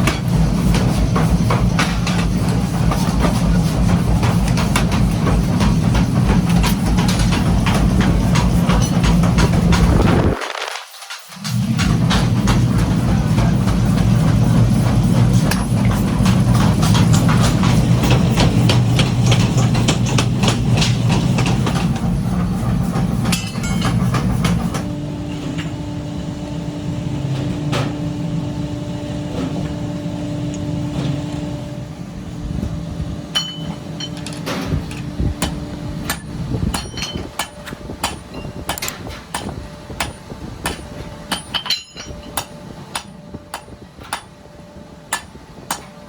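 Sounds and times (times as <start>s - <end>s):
steady machine hum: 0.0s - 46.0s
metal knocks of machinery: 33.4s - 44.4s.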